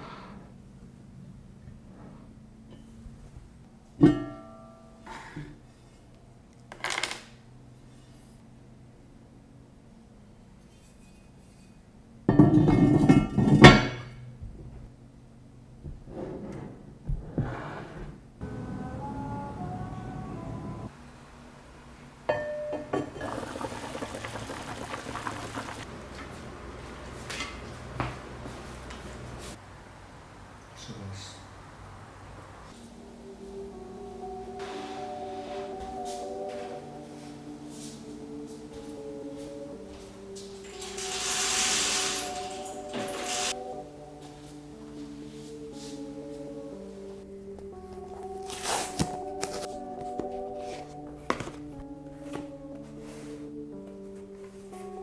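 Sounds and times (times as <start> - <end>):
faint background music: 0.5 - 55.0
ceramic dish clinking: 12.3 - 14.1, 22.3 - 24.1
tableware knocking and rattling: 12.3 - 14.1
liquid pouring into a vessel: 22.9 - 25.9.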